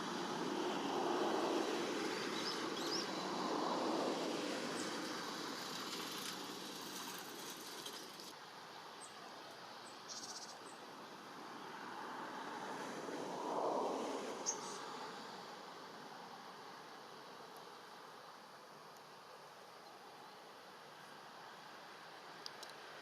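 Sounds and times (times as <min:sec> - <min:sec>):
outdoor background noise: 0:00.0 - 0:23.0
faint high bird chirps: 0:09.0 - 0:10.8.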